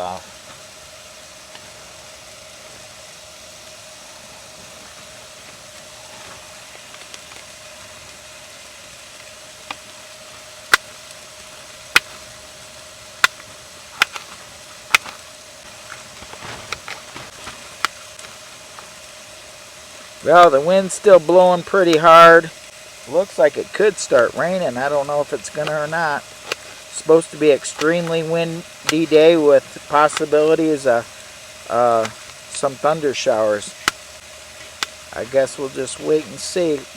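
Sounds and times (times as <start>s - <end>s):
steady hiss: 0.0s - 36.9s.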